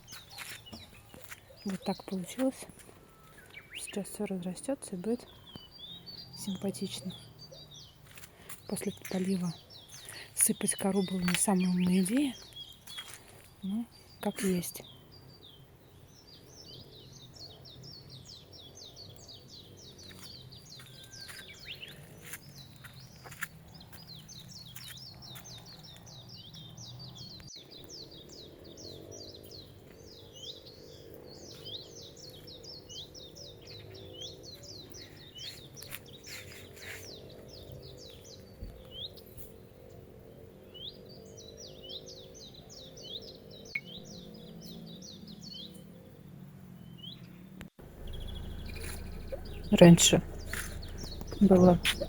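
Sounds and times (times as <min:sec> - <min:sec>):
small birds chirping: 0:00.0 - 0:52.0
faint low hum: 0:47.8 - 0:52.0.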